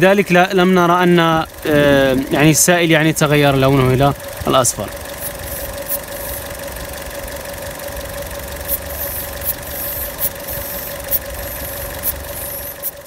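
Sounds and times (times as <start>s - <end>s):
car engine idling: 0.0s - 13.0s
short sharp hiss of tester: 8.7s - 13.0s.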